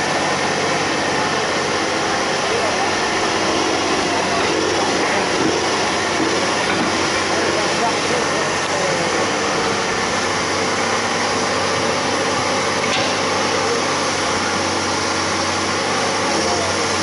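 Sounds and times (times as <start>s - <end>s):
excavator engine running: 0.0s - 17.0s.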